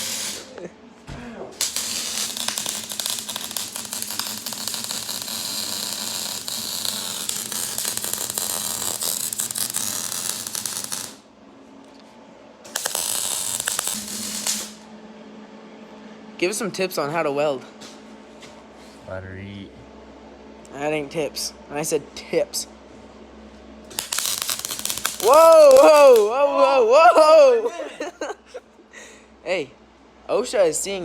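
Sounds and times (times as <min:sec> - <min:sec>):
welding arc crackling: 0:00.0 - 0:00.6, 0:01.6 - 0:11.2, 0:12.7 - 0:14.8, 0:23.9 - 0:27.3.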